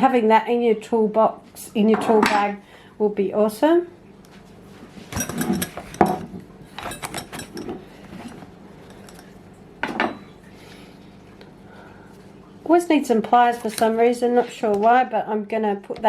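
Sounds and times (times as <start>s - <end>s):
metal tools clinking: 5.1s - 6.2s, 6.8s - 9.3s.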